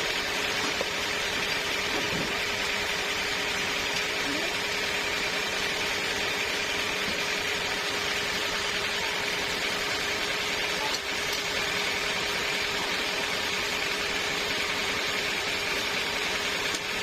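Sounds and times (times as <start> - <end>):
sawmill machinery running: 0.0 - 17.0.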